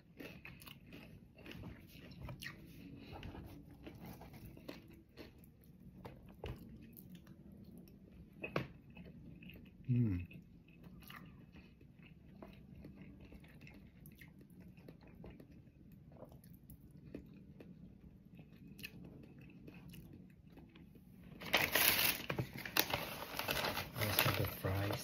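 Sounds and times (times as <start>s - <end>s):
person chewing crispy chicken: 0.0s - 24.9s
paper bag crinkling: 21.4s - 25.0s.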